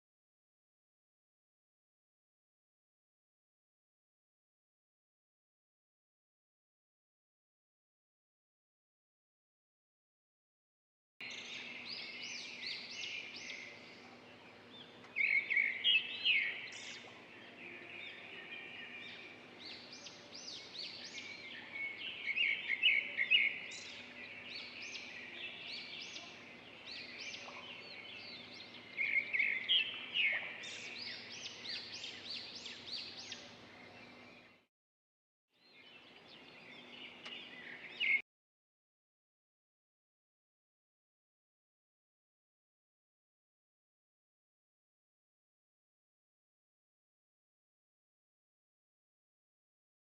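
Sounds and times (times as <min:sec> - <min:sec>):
small birds chirping: 0:11.2 - 0:34.7, 0:35.6 - 0:38.2.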